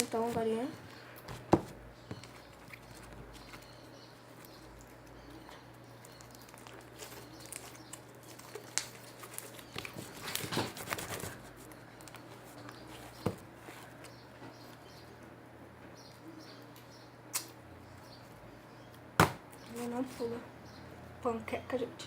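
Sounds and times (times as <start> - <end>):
wet slime clicks and crackles: 6.0 - 10.0
sharp knock: 19.2 - 19.4.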